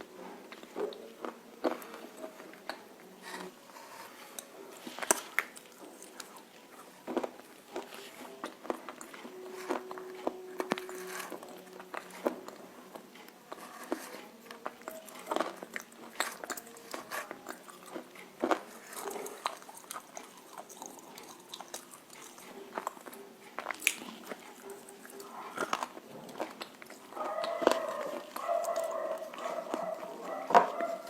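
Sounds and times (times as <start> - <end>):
clay chunks being chewed: 0.0 - 31.0.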